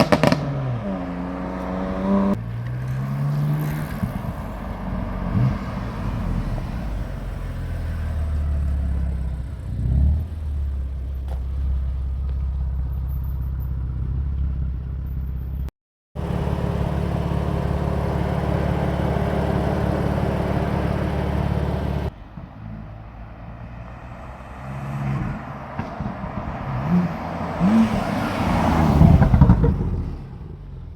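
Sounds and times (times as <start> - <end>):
engine revving: 0.0 - 10.8, 16.2 - 22.1, 23.9 - 30.9
car engine running: 16.2 - 22.1.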